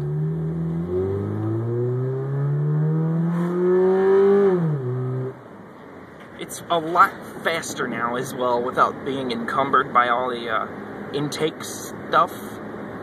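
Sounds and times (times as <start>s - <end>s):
car engine accelerating hard: 0.0s - 5.4s.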